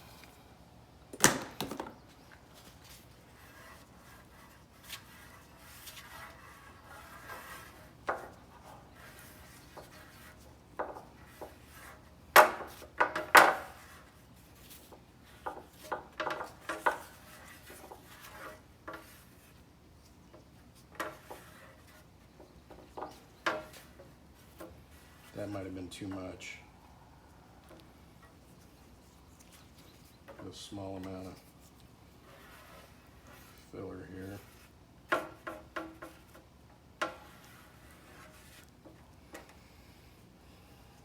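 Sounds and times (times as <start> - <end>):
sharp knocks: 1.1 - 2.0
spreader scraping and tapping: 1.1 - 26.6, 27.5 - 41.0.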